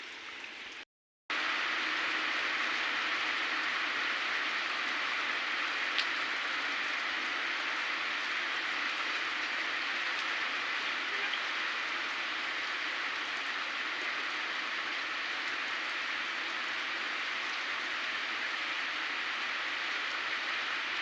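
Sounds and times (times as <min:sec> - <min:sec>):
heavy rain falling: 0:01.3 - 0:21.0
small tick: 0:06.0 - 0:06.2.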